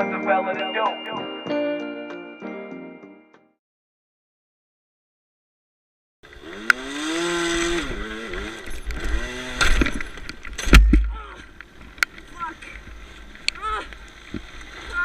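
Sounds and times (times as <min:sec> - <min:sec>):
small motorcycle engine revving: 0:06.2 - 0:10.7
loud thump: 0:10.6 - 0:11.2.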